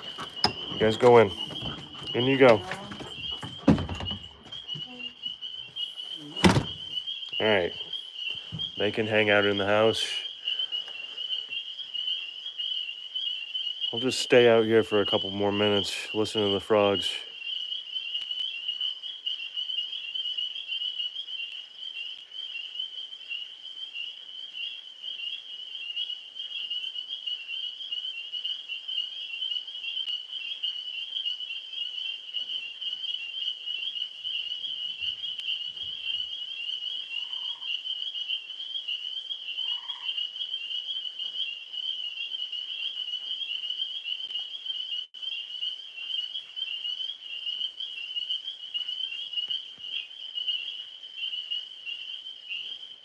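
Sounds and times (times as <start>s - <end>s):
faint lower frog calls: 0.0s - 53.0s
tree frogs trilling: 0.0s - 53.0s.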